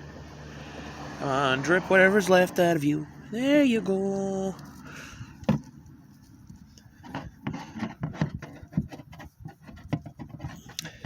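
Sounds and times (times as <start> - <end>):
rubbing and scraping: 3.9 - 11.0
knocks and clicks of handled parts: 5.4 - 5.8, 6.5 - 11.0.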